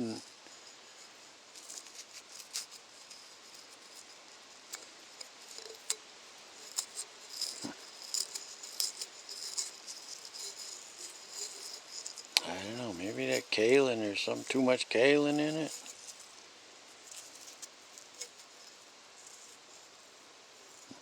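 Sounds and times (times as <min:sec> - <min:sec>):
crickets chirping: 0:00.0 - 0:21.0
ceramic pot clicking and rattling: 0:04.7 - 0:13.6.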